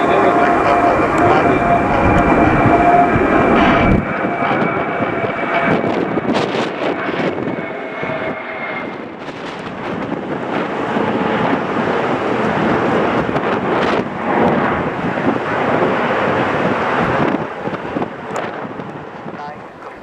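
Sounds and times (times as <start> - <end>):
faint high whine: 0.0 - 4.1
jet engines rushing: 0.0 - 20.0.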